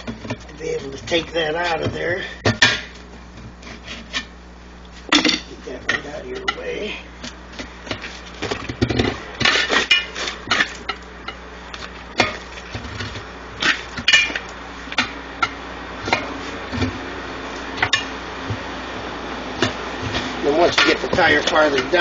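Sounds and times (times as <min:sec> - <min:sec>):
metal tools clanking on wheel rim: 0:05.1 - 0:06.8, 0:13.6 - 0:16.3, 0:19.6 - 0:22.0.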